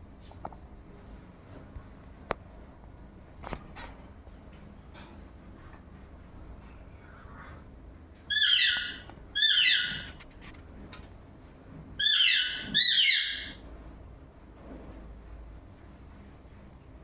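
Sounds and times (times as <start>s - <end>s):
bird calling loudly: 8.3s - 10.2s, 12.0s - 13.6s.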